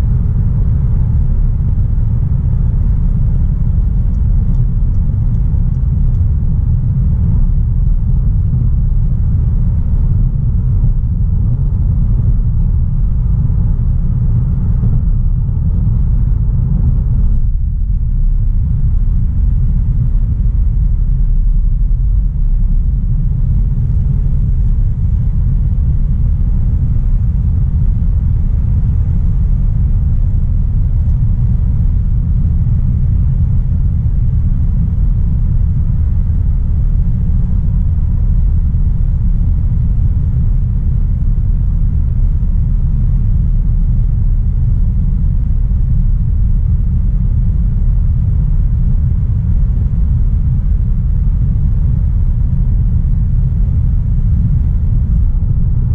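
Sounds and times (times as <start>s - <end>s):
car engine and road noise: 0.0s - 40.8s.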